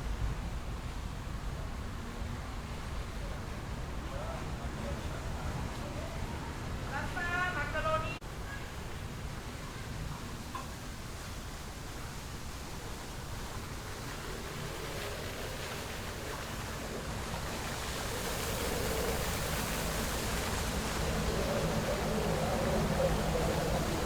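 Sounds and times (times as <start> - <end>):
waterfall rushing: 12.6 - 24.0.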